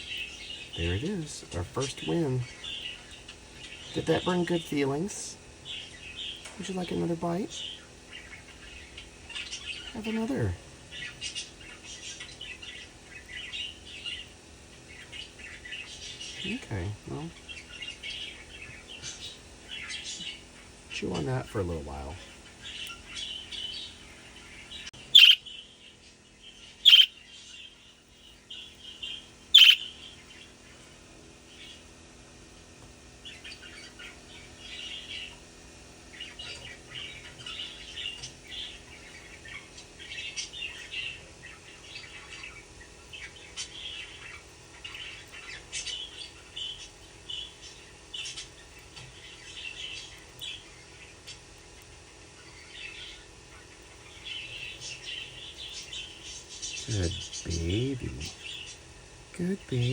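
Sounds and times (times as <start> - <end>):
budgerigar soft chirping: 24.8 - 25.5, 26.7 - 27.8, 28.5 - 30.3
budgerigar sharp calls: 25.0 - 25.4, 26.8 - 27.2, 28.8 - 30.1.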